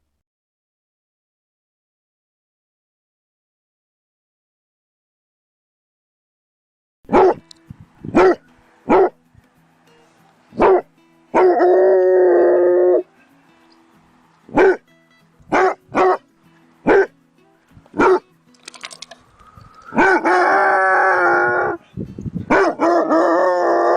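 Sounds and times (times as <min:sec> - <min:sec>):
dog barking: 0:07.1 - 0:07.4, 0:08.1 - 0:09.2, 0:10.6 - 0:11.9, 0:14.5 - 0:14.8, 0:15.5 - 0:17.1, 0:17.9 - 0:18.2, 0:19.9 - 0:20.6, 0:22.5 - 0:23.4
dog baying howl: 0:11.4 - 0:13.1, 0:14.5 - 0:14.8, 0:16.9 - 0:17.1, 0:19.9 - 0:21.8, 0:22.5 - 0:23.9.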